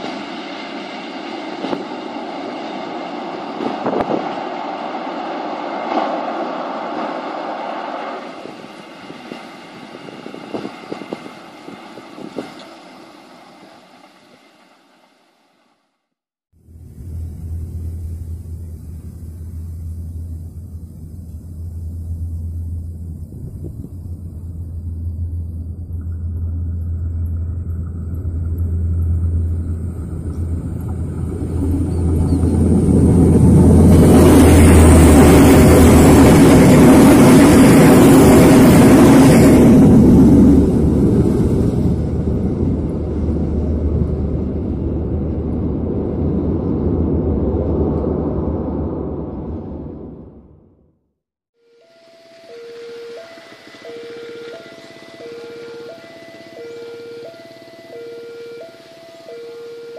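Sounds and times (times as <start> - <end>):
diesel train engine rumble: 0.0 - 14.7, 16.6 - 50.6, 51.9 - 59.8
wheel-on-rail noise: 16.6 - 48.6, 51.8 - 59.6.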